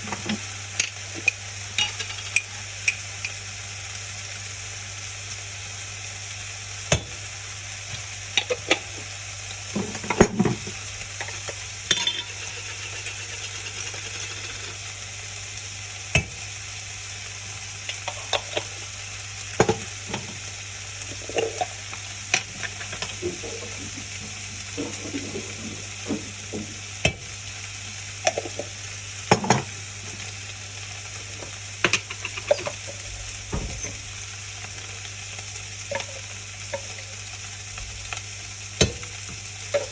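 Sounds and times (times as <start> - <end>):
food sizzling in a frying pan: 0.0 - 39.9
utensil scraping a pan: 24.7 - 26.8.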